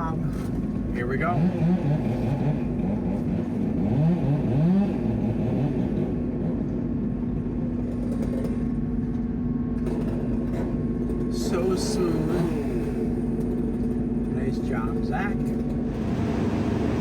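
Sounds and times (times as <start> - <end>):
crane engine humming: 11.3 - 17.0
motor revving: 15.9 - 17.0.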